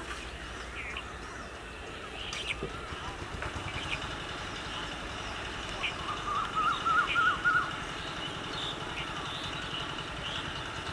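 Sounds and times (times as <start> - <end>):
bird warbling whistles: 5.8 - 7.7.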